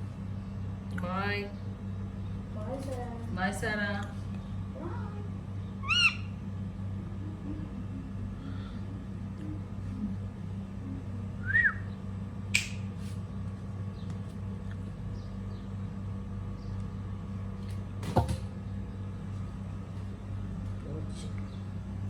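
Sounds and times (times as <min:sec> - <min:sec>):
steady low hum: 0:00.0 - 0:22.0
parrot chirp: 0:05.8 - 0:06.4
sharp click: 0:12.5 - 0:12.8
loud knock: 0:18.0 - 0:18.5.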